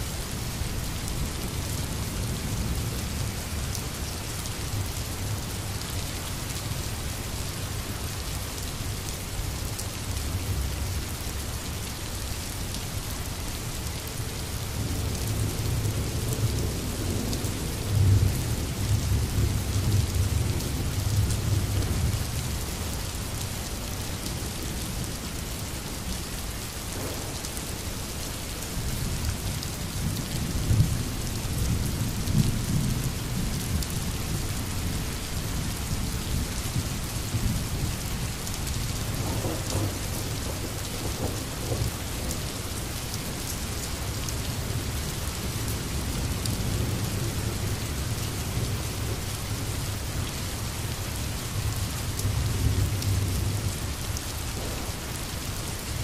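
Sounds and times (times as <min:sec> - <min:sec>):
rain hissing: 0:34.2 - 0:56.0
rolling thunder: 0:39.1 - 0:42.4, 0:54.5 - 0:55.4.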